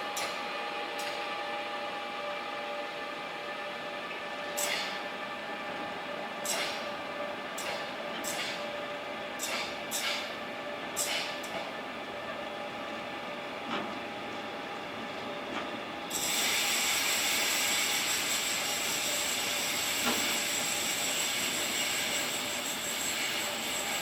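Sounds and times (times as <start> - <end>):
train wheels rolling on rails: 12.8 - 24.0
high squealing with hiss: 16.1 - 24.0.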